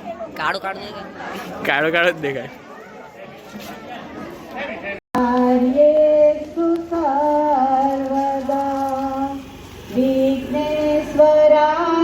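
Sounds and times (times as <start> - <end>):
person singing long held notes: 5.2 - 12.0.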